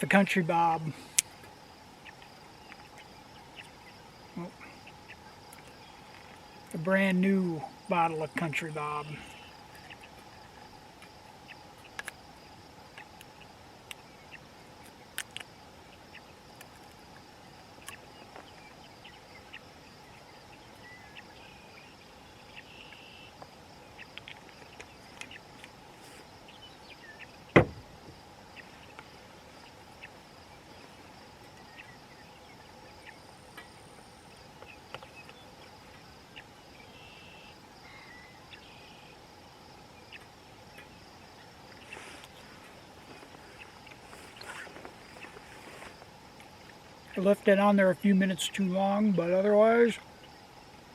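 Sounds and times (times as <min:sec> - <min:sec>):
crickets chirping: 0:00.0 - 0:50.9
sharp knock: 0:27.6 - 0:27.8.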